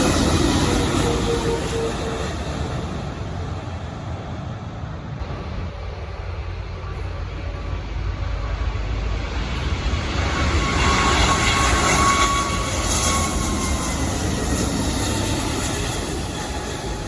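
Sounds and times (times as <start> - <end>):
jet airliner passing: 0.0 - 17.0
thin steady whine: 5.2 - 17.0.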